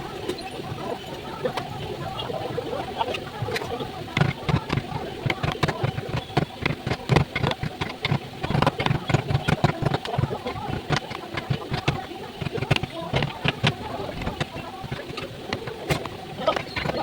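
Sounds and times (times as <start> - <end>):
knocking and tapping on wood: 3.4 - 17.0.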